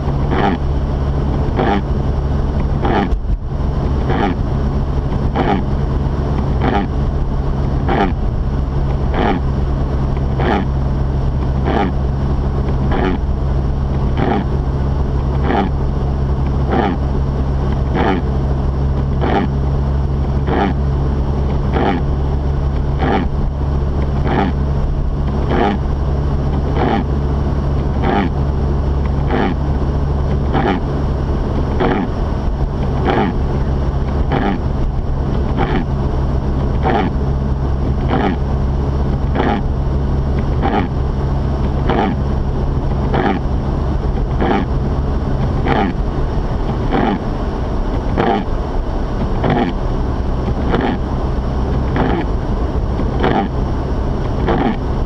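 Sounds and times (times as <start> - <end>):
engine and road drone: 0.0 - 55.0
windshield wipers sweeping: 18.9 - 55.0.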